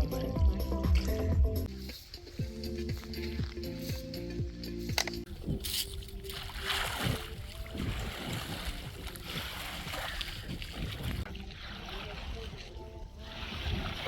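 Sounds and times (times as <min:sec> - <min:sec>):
water splashing around boat: 0:05.3 - 0:14.0.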